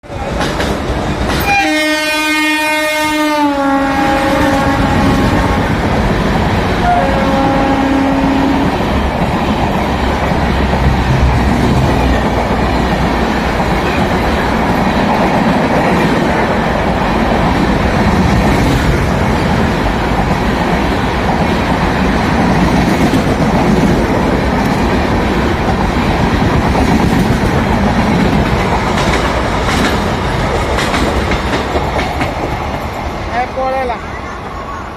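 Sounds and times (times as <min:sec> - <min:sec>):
train rumbling on rails: 0:00.0 - 0:34.9
train horn: 0:01.4 - 0:05.8, 0:06.8 - 0:08.8.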